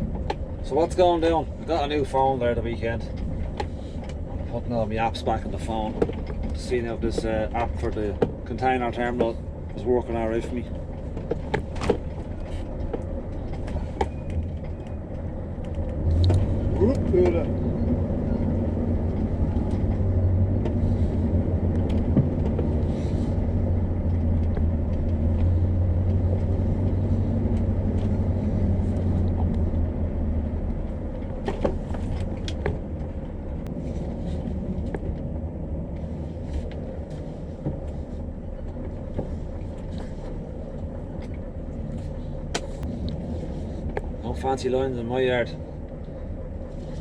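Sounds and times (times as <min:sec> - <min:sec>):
diesel engine droning: 0:00.0 - 0:47.0.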